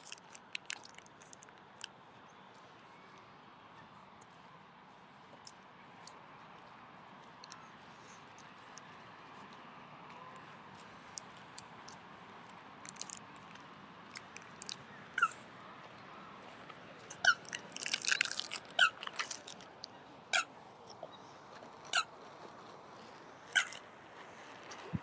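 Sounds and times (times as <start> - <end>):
bird squeaky calls: 15.2 - 15.4, 17.1 - 19.4, 23.5 - 23.8.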